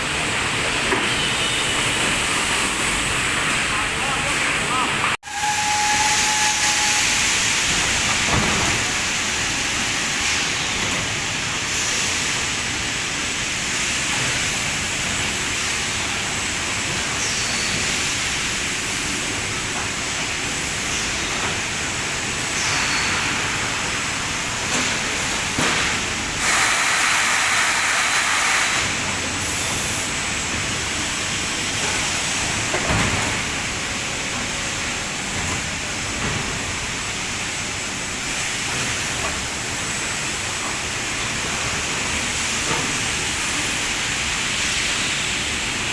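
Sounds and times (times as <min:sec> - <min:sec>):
press machinery hissing: 0:00.0 - 0:13.0, 0:13.7 - 0:32.7.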